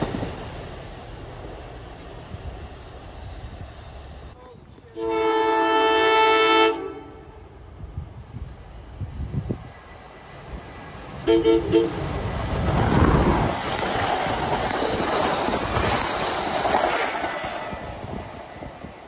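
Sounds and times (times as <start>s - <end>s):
train rolling past: 0.0s - 19.0s
train horn toots: 4.9s - 7.5s, 11.2s - 12.1s.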